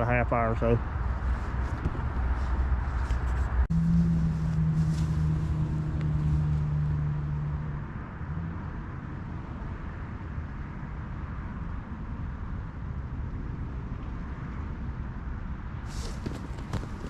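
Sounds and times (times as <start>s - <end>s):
low motor hum: 0.8s - 8.6s.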